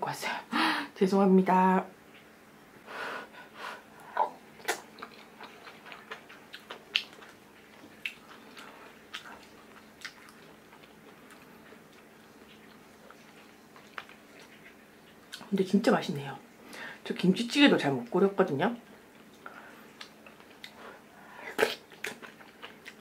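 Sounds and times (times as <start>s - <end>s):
person chewing with mouth clicks: 4.0s - 15.5s, 19.1s - 23.0s.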